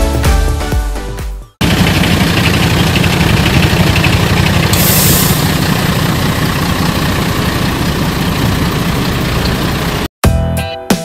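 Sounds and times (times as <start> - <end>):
heavy truck engine running: 1.6 - 10.1
short burst of hiss: 4.7 - 5.5.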